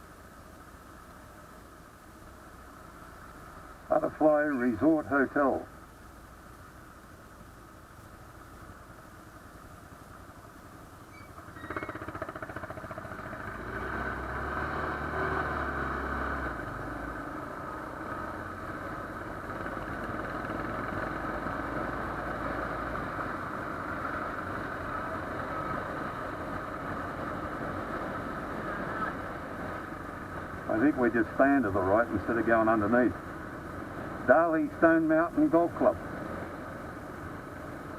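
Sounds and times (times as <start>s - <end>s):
motorcycle engine running: 8.1s - 37.9s.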